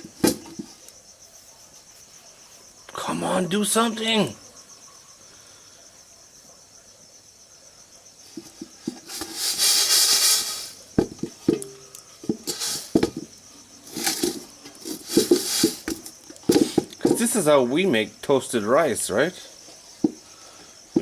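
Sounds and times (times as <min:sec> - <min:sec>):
insect chirring: 0:00.0 - 0:21.0
dry rice rattling in metal pot: 0:08.3 - 0:17.5
clicks and knocks against pot: 0:11.0 - 0:17.3.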